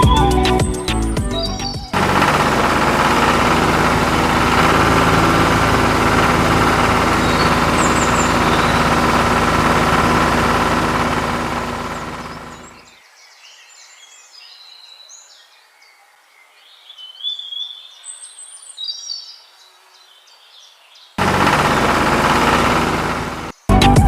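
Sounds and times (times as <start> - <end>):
engine idling: 0.0 - 12.8, 21.2 - 24.0.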